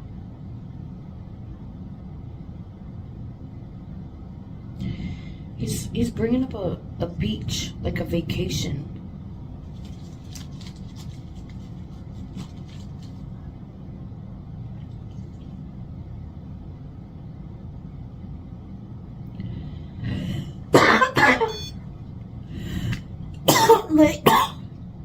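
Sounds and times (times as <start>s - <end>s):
low room hum: 0.0s - 25.0s
woman coughing: 20.7s - 21.7s, 23.5s - 24.6s.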